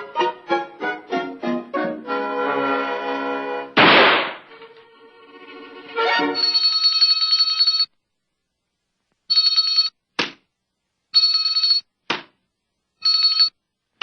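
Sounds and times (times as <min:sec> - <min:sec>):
electric bell ringing: 0:06.4 - 0:07.9.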